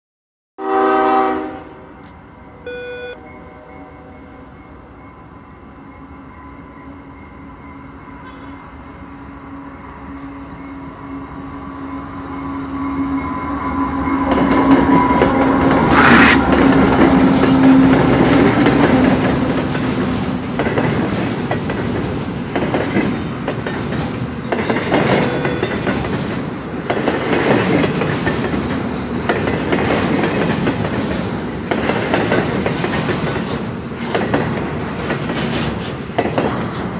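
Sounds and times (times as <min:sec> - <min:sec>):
diesel locomotive engine drone: 0:00.6 - 0:36.9
wheels clattering over rail joints: 0:16.5 - 0:36.9.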